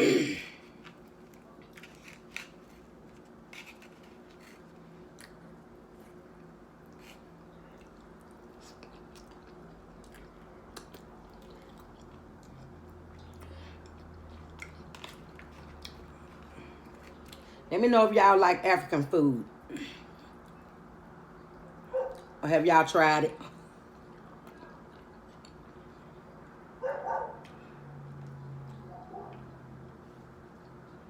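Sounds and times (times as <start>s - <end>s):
low steady hum: 0.0s - 31.0s
person chewing food: 0.5s - 17.6s, 23.6s - 26.5s.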